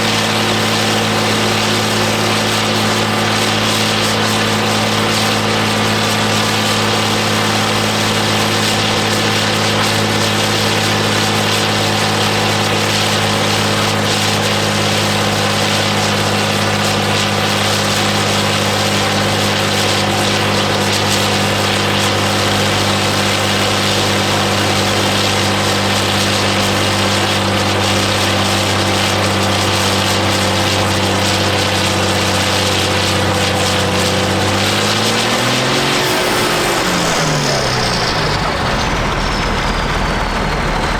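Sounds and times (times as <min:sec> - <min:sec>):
tractor diesel engine running: 0:33.1 - 0:40.9.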